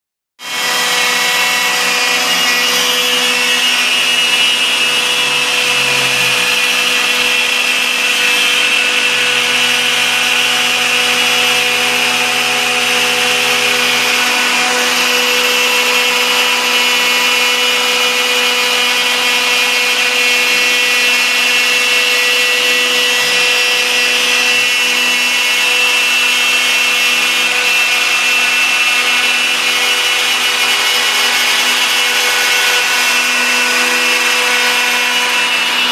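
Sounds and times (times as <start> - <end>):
cnc router spindle whine: 0.4 - 35.9
axis motors humming: 0.5 - 17.4.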